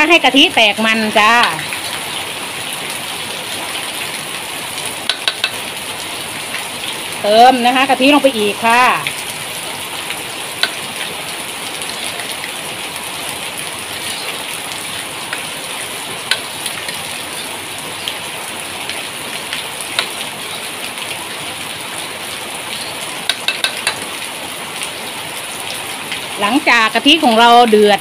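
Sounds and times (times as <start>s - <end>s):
metal spatula clicking against pan: 5.1s - 5.6s, 23.3s - 24.0s.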